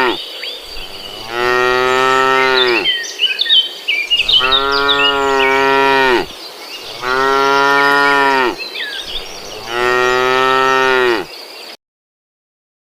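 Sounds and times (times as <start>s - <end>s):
cows mooing: 0.0s - 3.0s, 4.2s - 11.3s.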